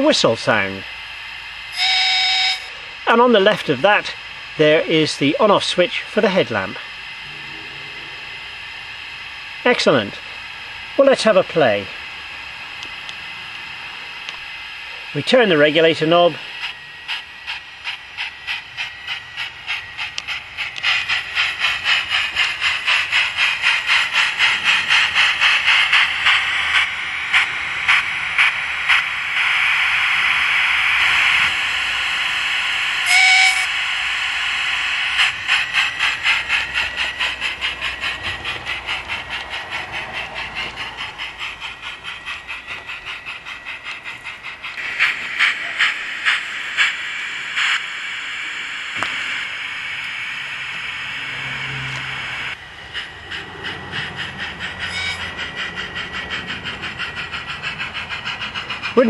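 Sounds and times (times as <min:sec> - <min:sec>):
steady steam hiss: 0:00.0 - 0:59.0
steam locomotive exhaust chuffs: 0:00.0 - 0:59.0
short steam whistle: 0:01.7 - 0:02.8, 0:33.0 - 0:33.8, 0:54.8 - 0:55.3.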